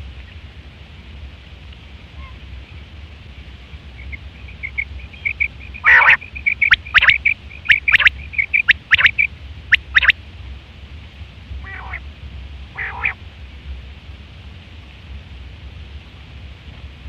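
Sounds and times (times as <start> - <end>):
quail calling: 4.0 - 10.1, 11.6 - 12.0, 12.8 - 13.2.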